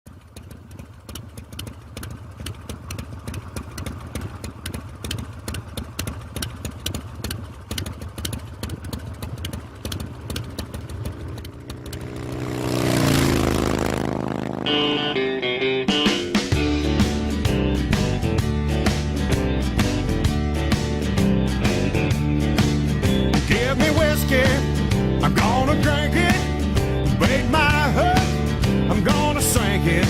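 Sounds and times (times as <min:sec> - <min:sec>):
motorcycle engine exhaust pulses: 0:00.1 - 0:15.2.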